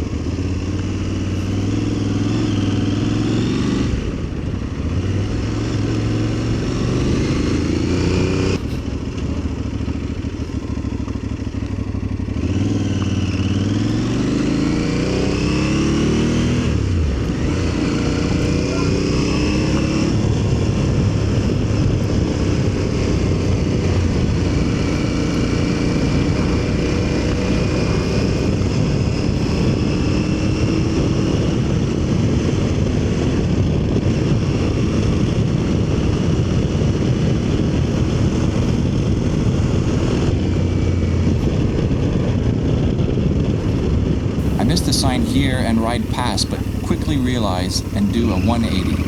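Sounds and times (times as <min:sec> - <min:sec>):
wind rumble on microphone: 0:20.1 - 0:44.6
motorcycle engine: 0:44.4 - 0:49.0.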